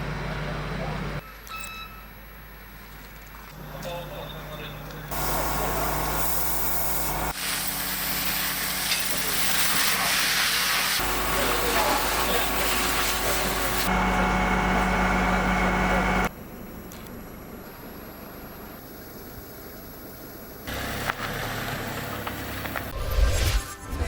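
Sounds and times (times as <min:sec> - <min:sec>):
idling vehicle engine hum: 0:20.7 - 0:22.9.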